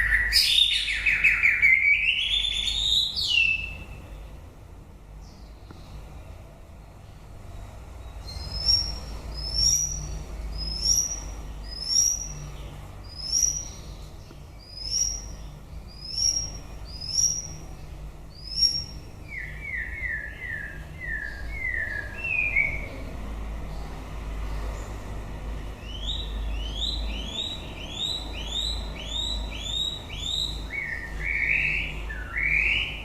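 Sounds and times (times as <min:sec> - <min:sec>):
bird singing whistles: 0:00.0 - 0:03.9, 0:08.3 - 0:12.4, 0:13.1 - 0:13.8, 0:14.6 - 0:17.6, 0:18.3 - 0:22.9, 0:25.8 - 0:33.0.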